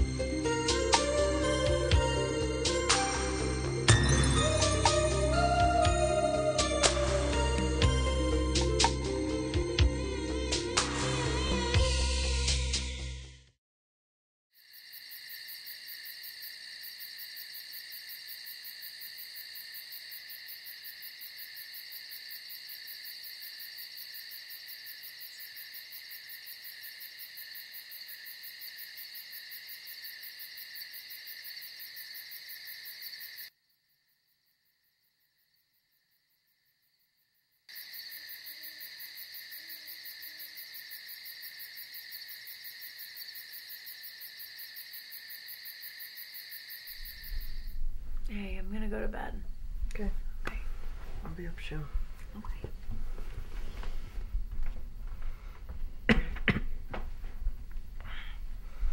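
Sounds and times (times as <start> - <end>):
crickets chirping: 14.6 - 57.0, 57.8 - 58.9.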